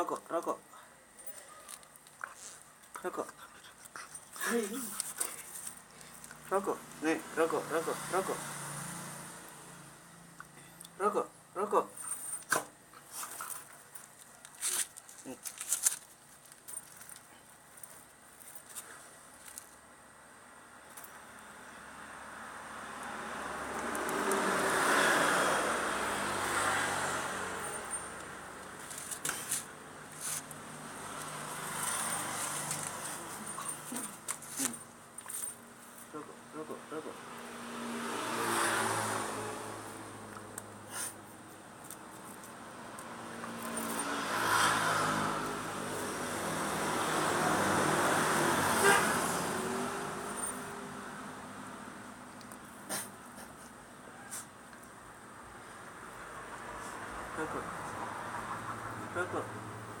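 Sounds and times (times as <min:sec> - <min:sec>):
motor vehicle passing: 0:04.4 - 0:12.4, 0:20.6 - 1:00.0.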